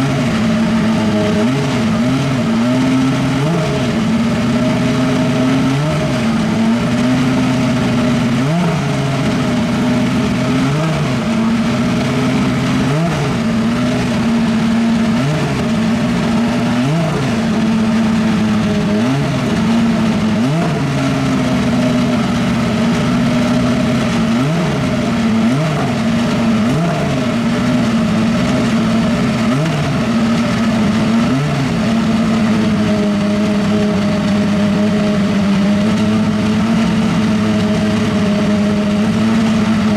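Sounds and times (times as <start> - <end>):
race car engine idling and blipping: 0.0 - 39.9.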